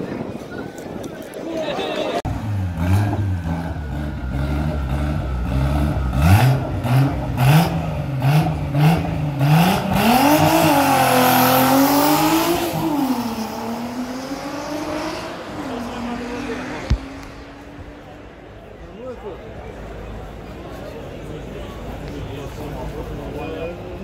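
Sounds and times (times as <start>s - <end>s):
cars accelerating hard: 2.3s - 18.2s
racing car engines revving: 2.3s - 18.7s.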